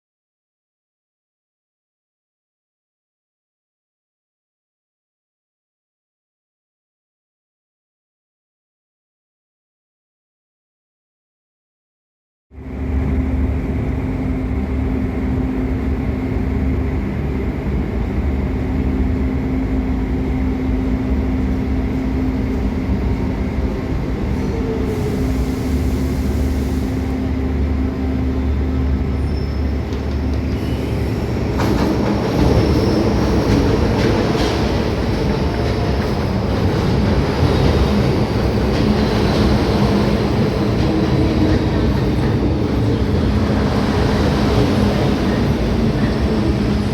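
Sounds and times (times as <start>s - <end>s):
electric train hum: 12.6s - 46.9s
wheels rumbling on rails: 12.8s - 46.9s
faint high squeals: 29.1s - 31.4s.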